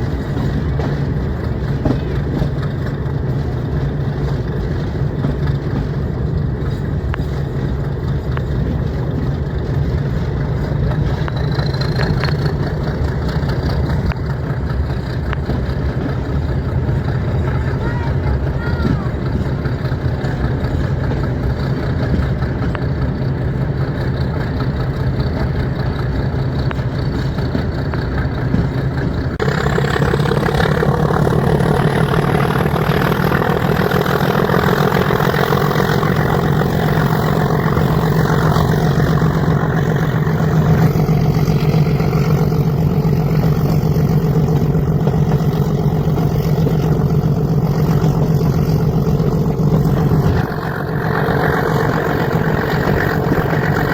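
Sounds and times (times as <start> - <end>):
diesel locomotive engine drone: 0.0 - 53.9
high whine climbing in pitch: 29.4 - 53.9.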